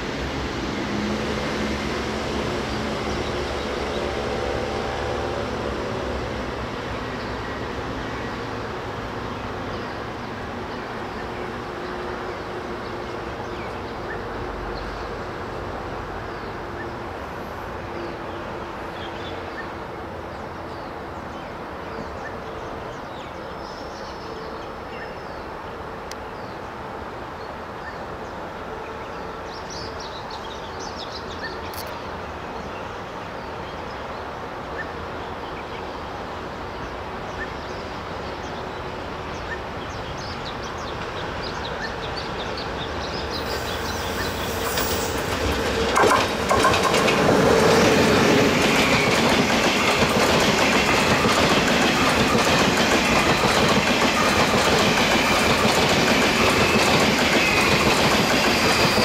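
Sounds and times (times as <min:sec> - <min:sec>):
electric train rumbling: 0:00.0 - 0:23.0, 0:36.0 - 0:59.0.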